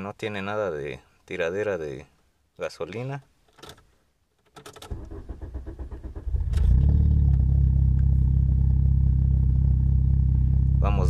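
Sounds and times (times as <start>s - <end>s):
engine starter cranking: 4.6s - 7.5s
car engine idling: 5.0s - 11.0s.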